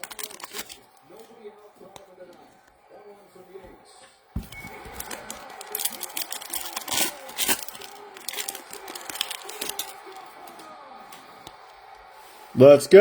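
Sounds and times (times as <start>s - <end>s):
foil wrapper crinkling: 0.0s - 1.4s, 4.4s - 11.6s
cards clicking and rustling: 0.0s - 2.5s, 4.4s - 11.8s.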